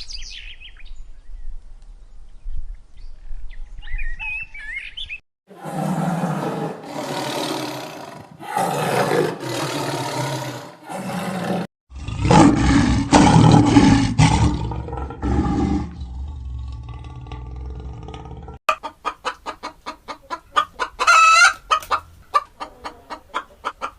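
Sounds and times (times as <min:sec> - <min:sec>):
large animal roaring: 0:05.5 - 0:18.6.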